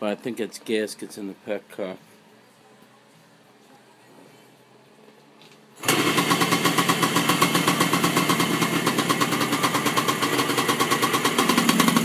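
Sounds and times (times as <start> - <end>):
two-stroke engine starting and running: 5.8 - 12.0.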